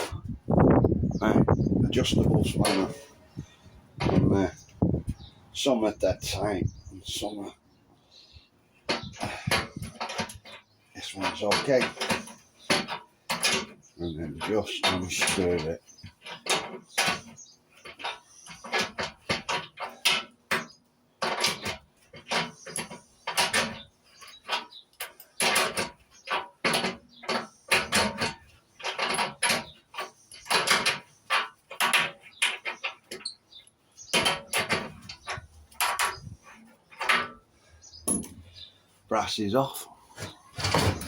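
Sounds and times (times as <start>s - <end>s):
spanner clinking on brass fitting: 38.0s - 38.4s.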